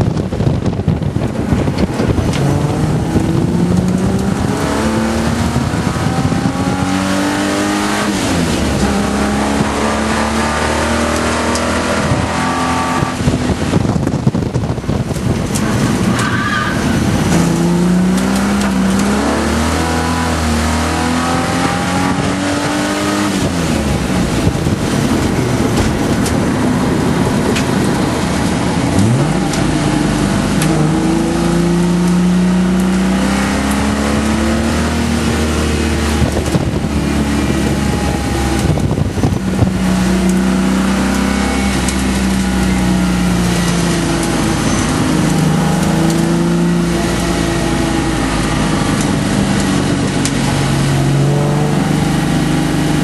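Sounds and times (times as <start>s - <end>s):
car engine revving under acceleration: 0.0s - 53.0s.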